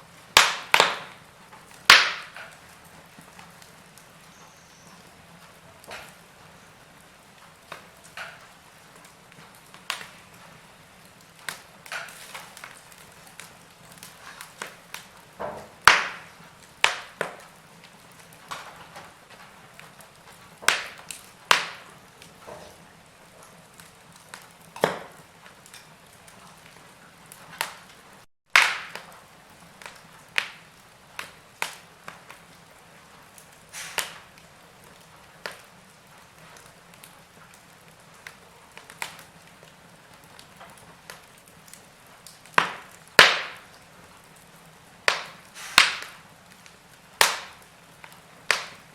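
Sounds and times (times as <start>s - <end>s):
log fire crackling: 0.0s - 48.9s
low steady hiss: 0.0s - 48.9s.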